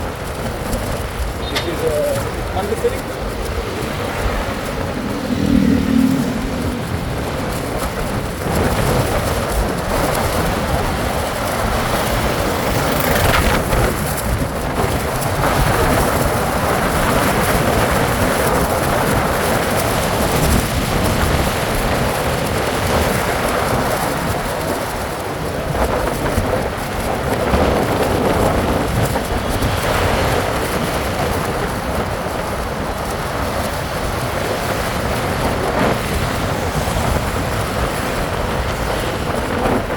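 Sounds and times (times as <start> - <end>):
rushing wind and road noise: 0.0 - 39.9
brief low tone: 4.8 - 7.5.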